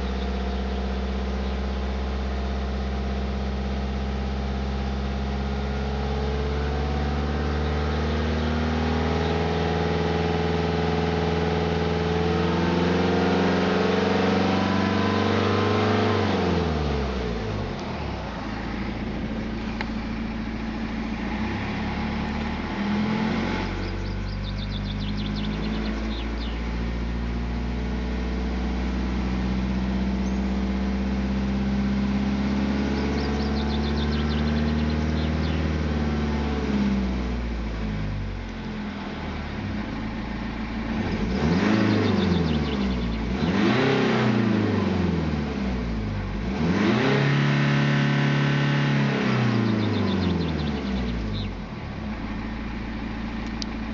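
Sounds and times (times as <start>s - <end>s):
car engine running: 0.0s - 53.9s
faint high ticks: 53.4s - 53.7s.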